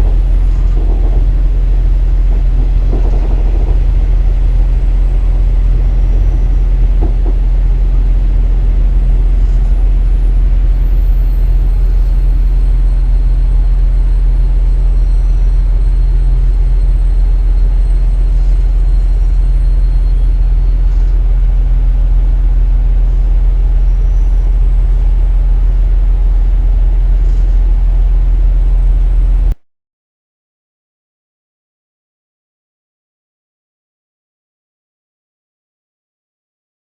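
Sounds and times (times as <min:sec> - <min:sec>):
diesel railcar engine droning: 0:00.0 - 0:29.6.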